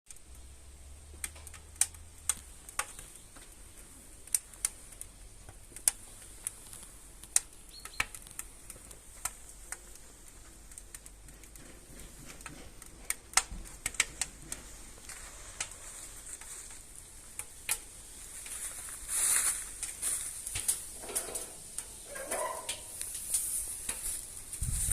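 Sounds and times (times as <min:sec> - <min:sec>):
firewood crackling and popping: 0:00.1 - 0:24.9
faint hiss: 0:14.5 - 0:24.9.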